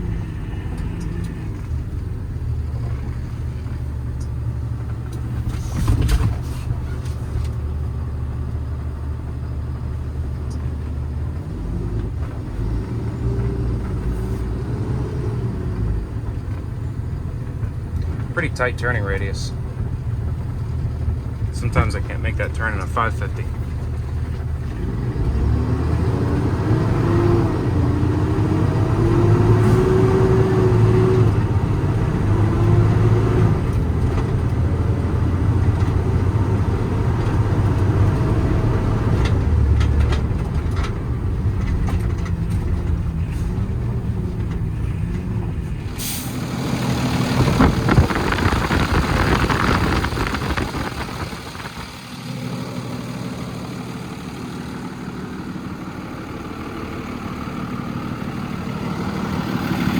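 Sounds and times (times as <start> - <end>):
diesel engine running: 0.0 - 59.9
air brake hiss: 46.0 - 46.4.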